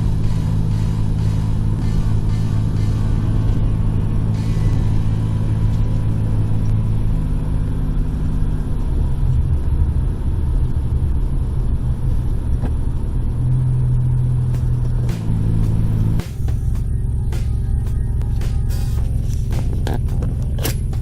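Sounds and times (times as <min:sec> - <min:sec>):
car engine and road hum: 0:00.0 - 0:21.0.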